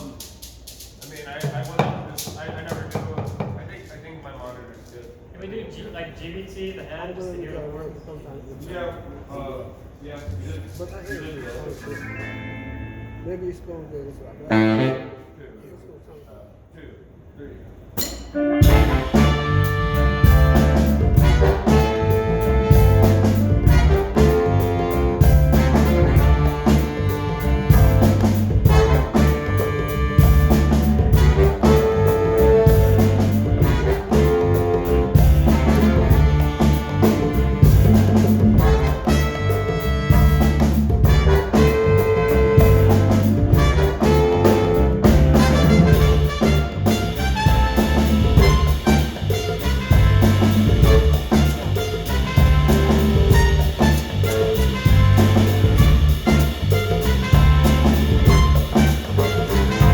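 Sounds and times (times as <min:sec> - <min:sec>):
live band with horns: 0:14.4 - 0:15.5, 0:18.3 - 0:59.9
repeating bass groove: 0:18.6 - 0:59.9.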